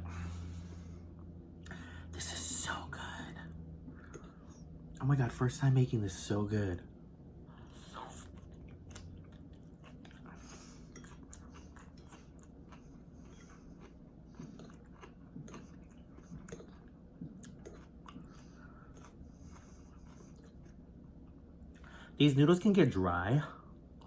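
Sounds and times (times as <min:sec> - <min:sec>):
person chewing and slurping noodles: 0:07.5 - 0:22.2.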